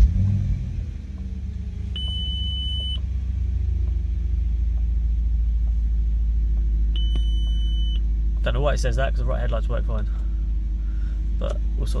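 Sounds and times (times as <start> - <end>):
car engine idling: 0.0 - 12.0
dashboard warning chime: 1.9 - 3.1, 6.9 - 8.0.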